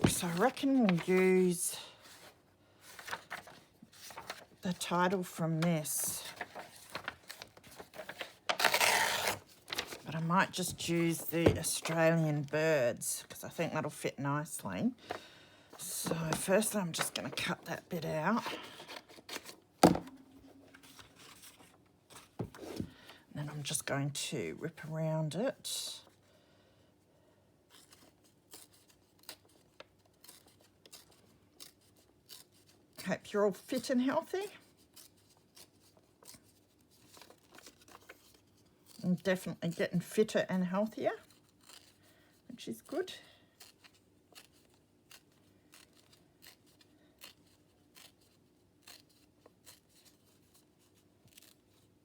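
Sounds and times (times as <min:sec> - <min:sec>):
scissors snipping paper: 0:06.4 - 0:10.0, 0:27.8 - 0:32.8, 0:41.2 - 0:42.0, 0:43.6 - 0:50.6
paper being cut and torn: 0:07.0 - 0:10.0.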